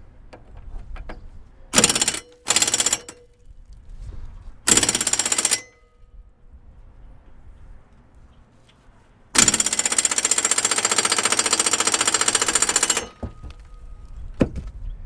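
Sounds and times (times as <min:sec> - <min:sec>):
impact wrench hammering: 0:01.8 - 0:03.3, 0:04.7 - 0:05.8, 0:09.4 - 0:13.7.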